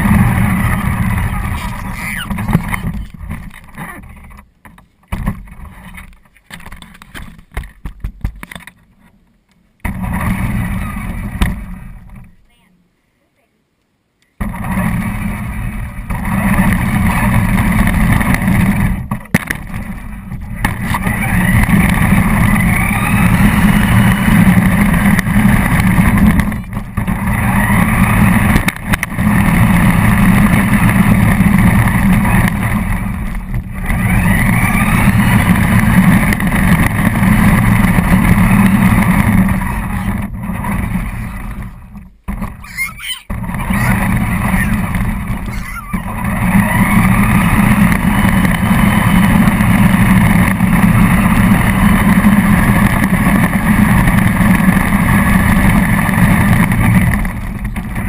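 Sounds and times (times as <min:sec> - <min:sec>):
rc car motor whining: 0:00.0 - 0:03.2, 0:20.4 - 0:41.9, 0:42.5 - 0:57.8.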